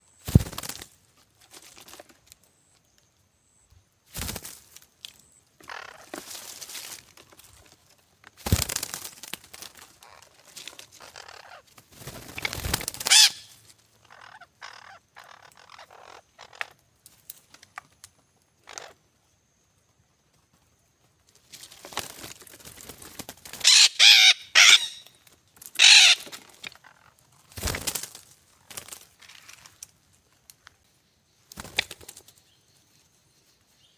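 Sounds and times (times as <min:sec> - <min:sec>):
parrots squawking: 0:05.6 - 0:06.0, 0:11.0 - 0:11.6, 0:13.0 - 0:16.7, 0:23.6 - 0:25.1, 0:25.8 - 0:27.1.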